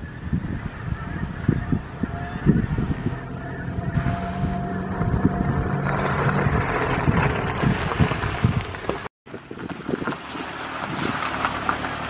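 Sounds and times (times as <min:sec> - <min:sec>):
tyres rolling on gravel: 0:03.1 - 0:12.0.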